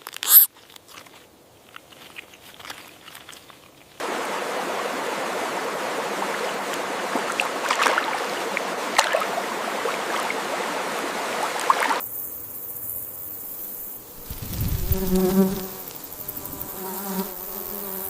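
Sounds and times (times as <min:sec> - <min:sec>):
water flowing and gurgling: 0:04.0 - 0:12.0
high insect drone: 0:12.0 - 0:18.0.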